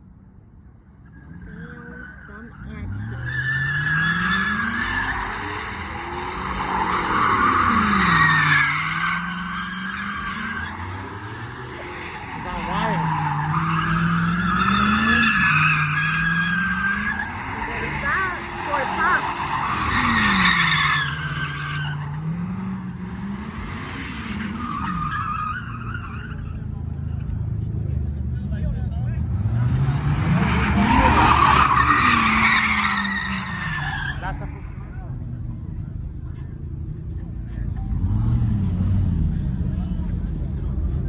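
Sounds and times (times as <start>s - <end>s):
car engine revving: 1.1s - 41.0s
tyres squealing: 1.2s - 22.4s, 30.3s - 34.8s.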